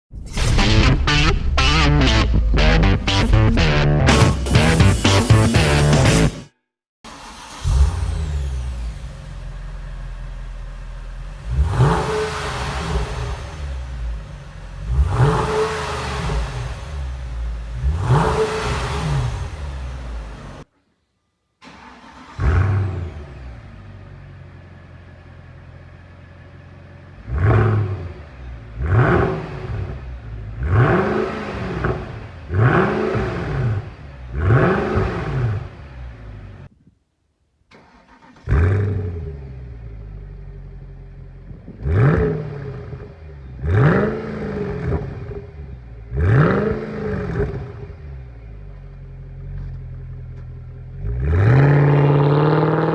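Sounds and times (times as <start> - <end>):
car engine revving: 0.4 - 6.5, 7.1 - 20.7, 21.6 - 36.7, 37.7 - 52.9
car engine idling: 21.6 - 27.4, 37.7 - 51.3.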